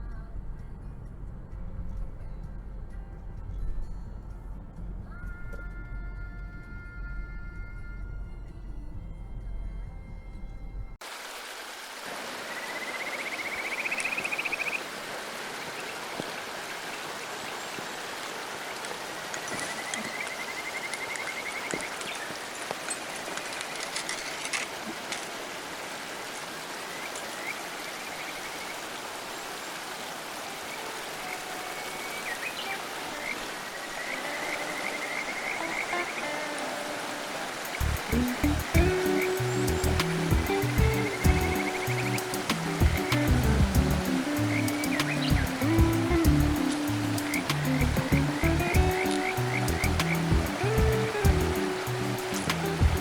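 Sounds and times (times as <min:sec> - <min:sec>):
stream flowing over rocks: 0:11.0 - 0:53.0
high rapid trilling bird call: 0:38.0 - 0:53.0.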